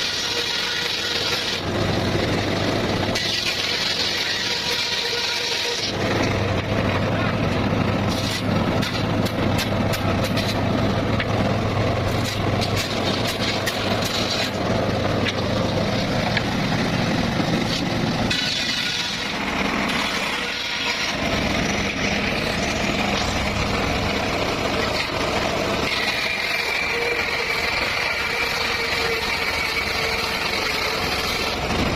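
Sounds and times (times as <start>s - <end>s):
circular saw cutting bamboo: 0.0s - 31.9s
engine drone: 0.0s - 31.9s
high steady whine: 1.1s - 31.9s
sharp clicks and knocks: 6.2s - 10.6s, 15.2s - 15.5s.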